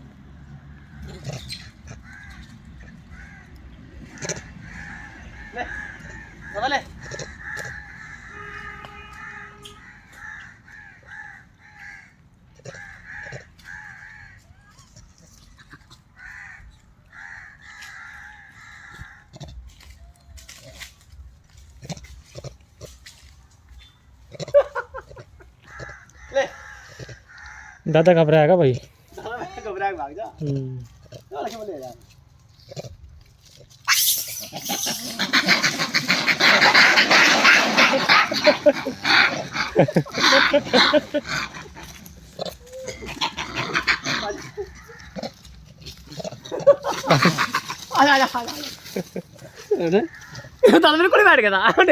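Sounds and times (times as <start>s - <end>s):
crows cawing: 0.4s - 14.7s, 16.2s - 19.3s, 25.6s - 28.0s, 33.9s - 50.8s
animal squealing and screeching: 0.9s - 12.0s, 33.8s - 50.7s.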